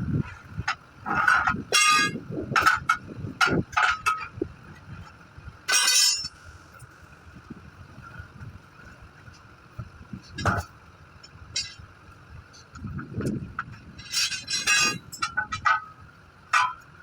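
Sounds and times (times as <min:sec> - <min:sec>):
metal tools clanking: 0:00.3 - 0:04.5, 0:05.7 - 0:06.5, 0:10.2 - 0:11.9, 0:12.6 - 0:16.9.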